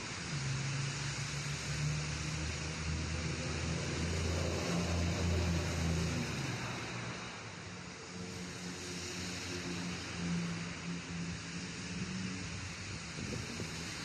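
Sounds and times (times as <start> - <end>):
rain hiss: 0.0 - 14.0
wet traffic: 0.0 - 14.0.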